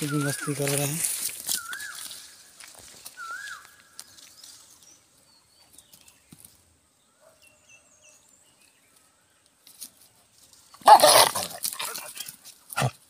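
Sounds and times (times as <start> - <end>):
whistled bird call: 3.2 - 3.8.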